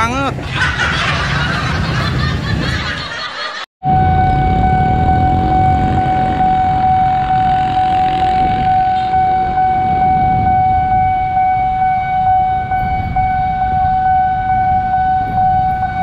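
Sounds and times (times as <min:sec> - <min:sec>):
level-crossing alarm tone: 0:03.9 - 0:16.0
motorcycles idling rumble: 0:05.8 - 0:09.1.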